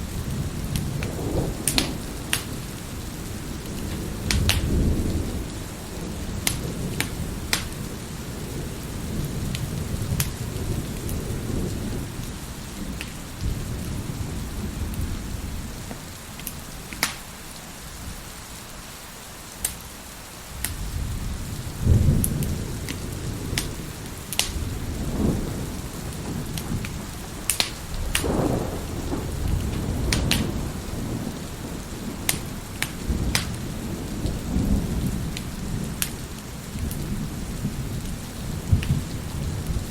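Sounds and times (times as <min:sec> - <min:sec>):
rolling thunder: 0:00.0 - 0:17.2, 0:20.5 - 0:39.9
steady rain: 0:00.0 - 0:39.9
wood fire crackling and popping: 0:00.6 - 0:02.6, 0:03.6 - 0:05.2, 0:06.3 - 0:07.9, 0:09.5 - 0:11.2, 0:13.0 - 0:13.9, 0:15.9 - 0:17.3, 0:19.6 - 0:19.8, 0:20.6 - 0:20.9, 0:22.2 - 0:25.2, 0:26.1 - 0:37.1.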